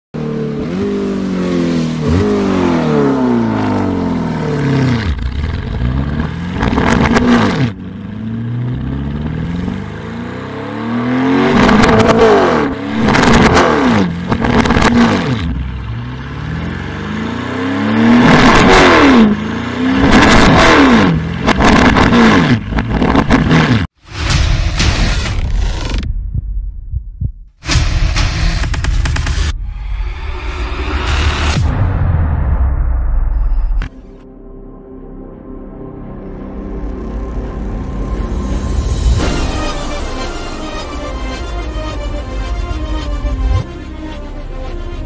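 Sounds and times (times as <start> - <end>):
car engine revving: 0.2 - 24.0.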